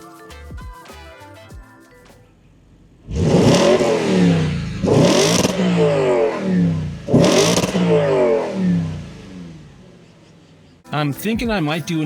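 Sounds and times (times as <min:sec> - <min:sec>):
car engine starting and revving: 0:02.6 - 0:10.8.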